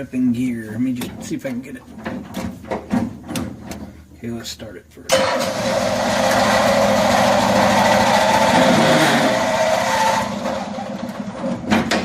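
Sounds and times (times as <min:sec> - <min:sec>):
small vehicle engine running: 0:05.1 - 0:11.3.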